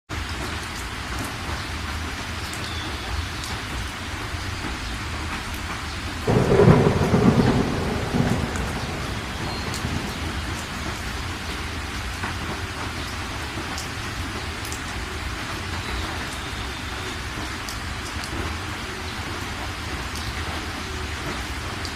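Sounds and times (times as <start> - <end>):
heavy rain falling: 0.1 - 21.9
thunderclap rumbling: 6.2 - 12.8.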